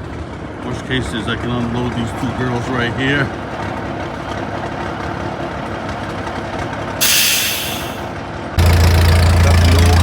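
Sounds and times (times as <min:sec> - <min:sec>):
truck engine idling: 0:00.0 - 0:10.0
sharp air hiss: 0:07.0 - 0:08.1.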